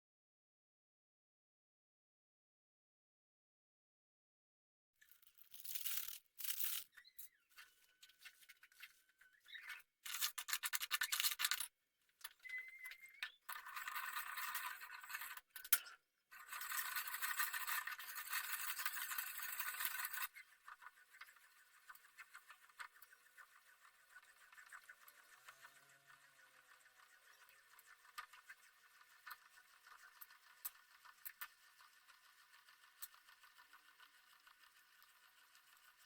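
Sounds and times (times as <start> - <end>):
kitchen food preparation scraping: 12.5 - 25.9.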